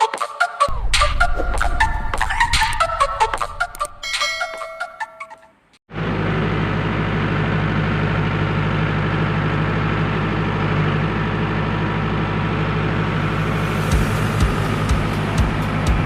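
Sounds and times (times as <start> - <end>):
diesel engine running: 5.9 - 16.0.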